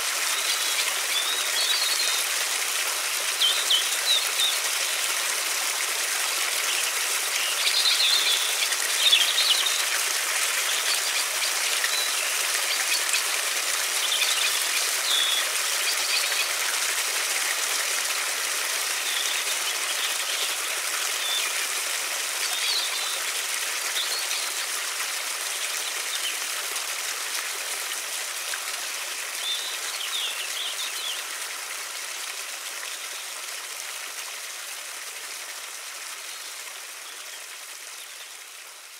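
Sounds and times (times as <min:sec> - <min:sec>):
river water rushing: 0:00.0 - 0:27.0
small birds chirping: 0:06.6 - 0:10.0, 0:10.6 - 0:16.6.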